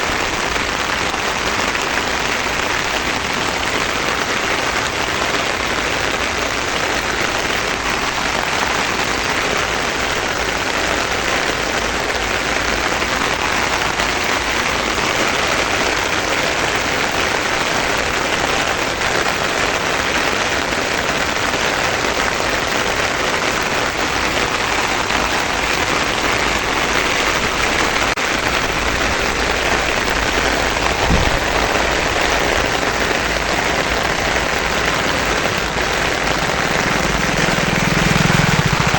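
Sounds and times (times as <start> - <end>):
heavy rain hissing: 0.0 - 38.9
short low thump: 30.8 - 32.4.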